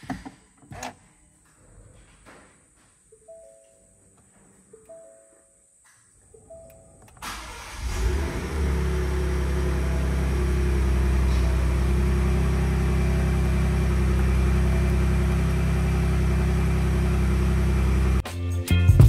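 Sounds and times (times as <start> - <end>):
car engine starting and idling: 6.7 - 18.2.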